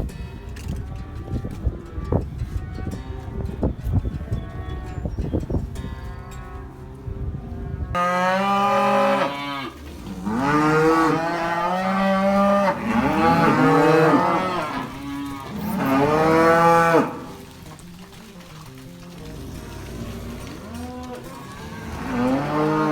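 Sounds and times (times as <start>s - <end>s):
cattle mooing: 7.9s - 22.9s.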